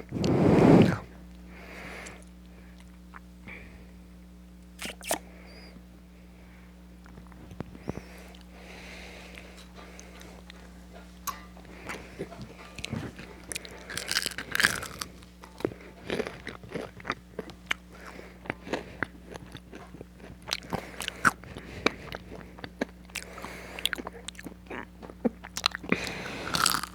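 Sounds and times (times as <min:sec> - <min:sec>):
chewing crispy fries: 0:07.0 - 0:26.9.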